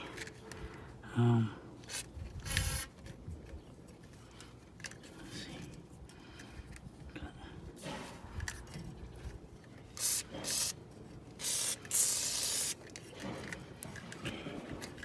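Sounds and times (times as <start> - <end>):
aerosol spray hissing: 10.0 - 10.8, 11.4 - 12.8.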